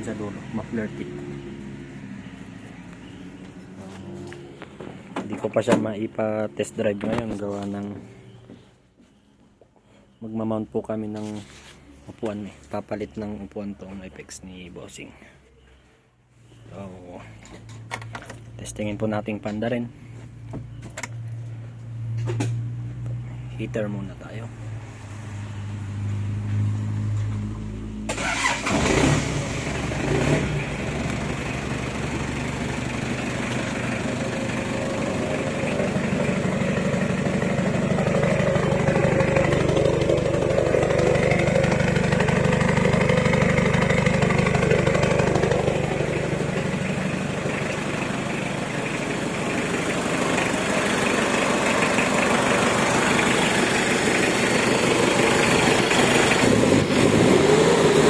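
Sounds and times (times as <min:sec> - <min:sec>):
diesel engine cranking and running: 0:27.2 - 0:58.0.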